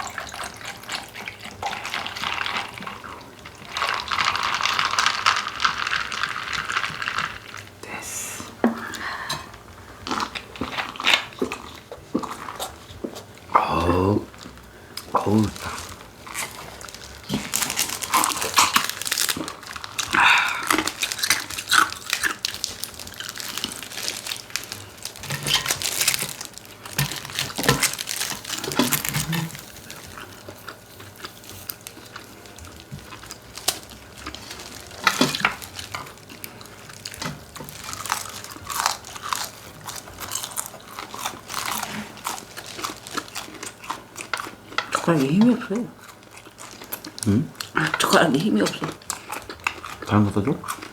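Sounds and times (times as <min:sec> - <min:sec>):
crunching and chewing: 0:00.0 - 0:07.8, 0:08.9 - 0:50.9.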